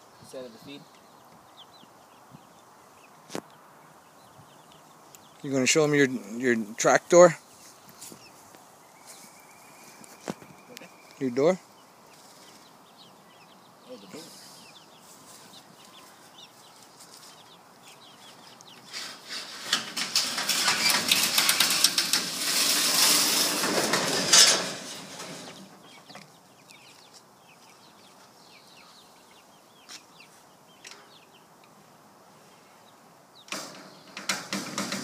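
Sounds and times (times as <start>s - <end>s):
loud rustling and rattling: 18.8s - 25.9s, 33.5s - 35.0s
chickens clucking: 23.2s - 31.8s.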